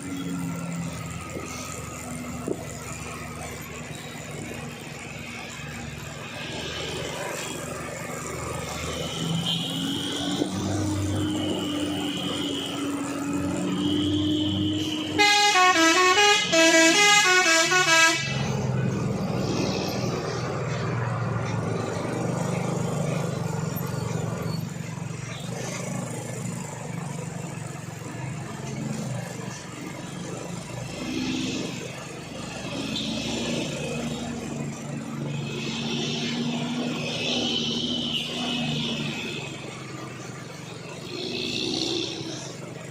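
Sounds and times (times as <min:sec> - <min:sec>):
heavy truck engine running: 0:00.0 - 0:37.0
multi-tone air horn melody: 0:11.2 - 0:18.7.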